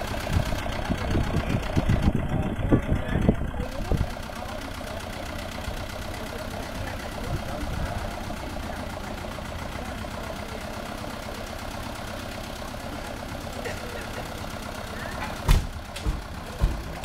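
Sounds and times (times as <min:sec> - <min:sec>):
tractor diesel engine idling: 0:00.0 - 0:17.0.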